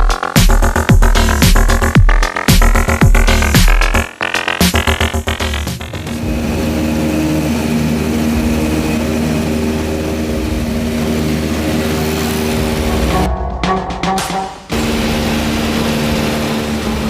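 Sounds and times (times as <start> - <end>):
propeller aircraft engine droning: 0.0 - 17.0.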